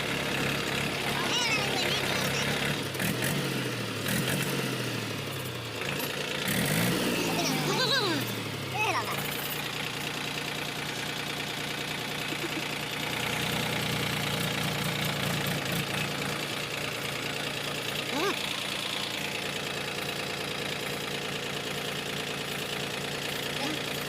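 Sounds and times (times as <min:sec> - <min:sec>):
tractor diesel engine idling: 0:00.0 - 0:24.0.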